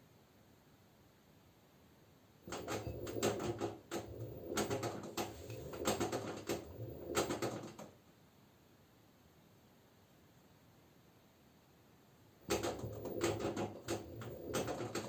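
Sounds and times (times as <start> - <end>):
washing machine drum turning: 2.4 - 7.8, 12.4 - 15.0.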